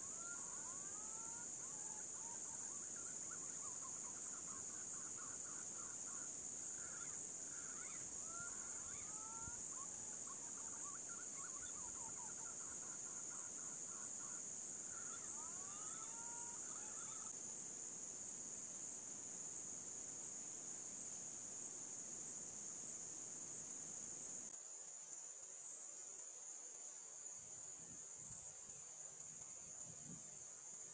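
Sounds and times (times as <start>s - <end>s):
shrill insect drone: 0.0s - 17.4s.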